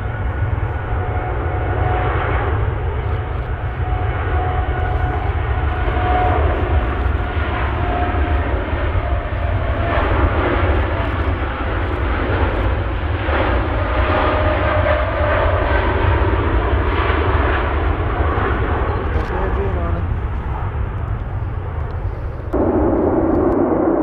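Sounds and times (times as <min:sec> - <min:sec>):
aircraft engines running: 0:00.0 - 0:24.0.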